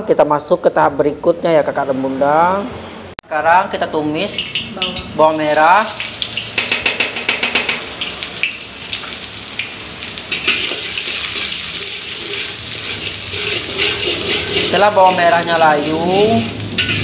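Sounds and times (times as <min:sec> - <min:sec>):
shallots frying in hot oil: 0:04.2 - 0:17.0.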